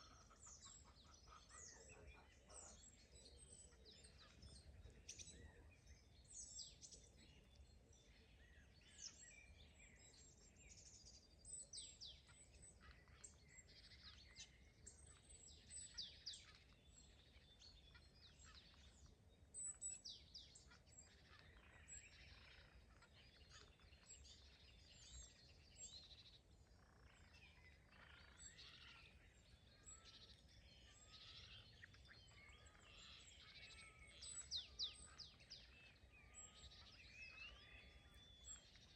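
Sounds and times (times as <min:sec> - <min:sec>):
songbirds singing and chirping: 0:00.0 - 0:38.9.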